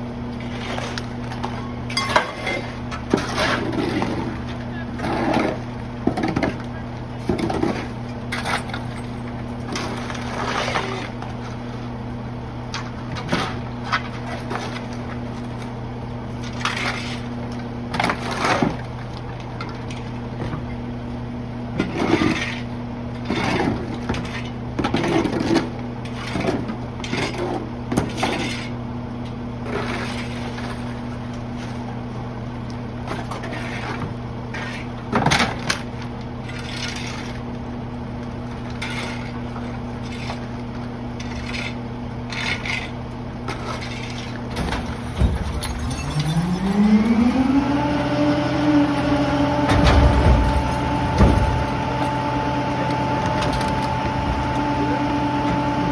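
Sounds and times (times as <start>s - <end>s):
debris crashing and clattering: 43.6s - 47.2s, 49.6s - 55.9s
diesel engine idling: 46.8s - 55.9s.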